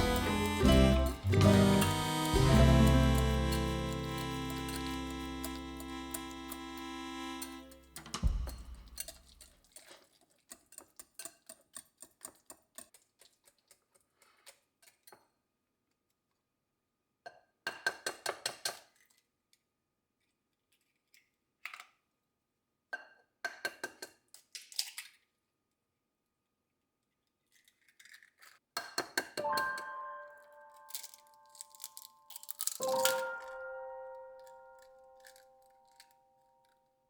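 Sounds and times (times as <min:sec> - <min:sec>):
utensils clinking against dishes: 0:00.0 - 0:06.7.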